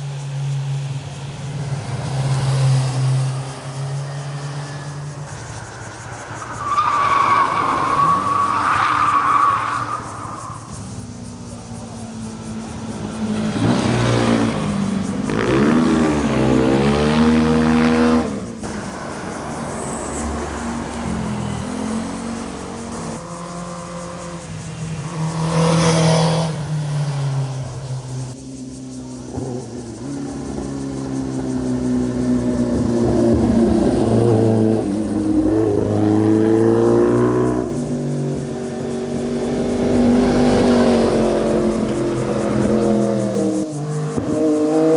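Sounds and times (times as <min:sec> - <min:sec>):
motorcycle engine accelerating: 0:20.8 - 0:44.9.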